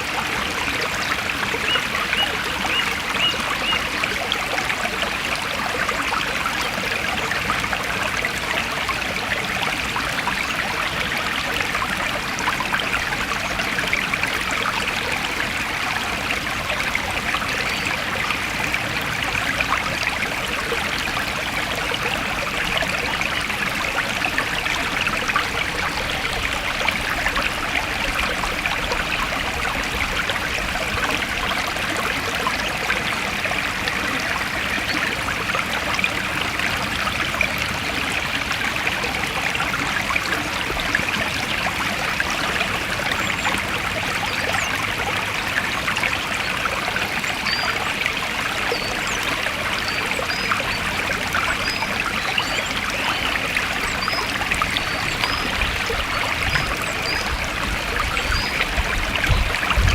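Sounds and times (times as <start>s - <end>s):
stream flowing: 0.0s - 59.9s.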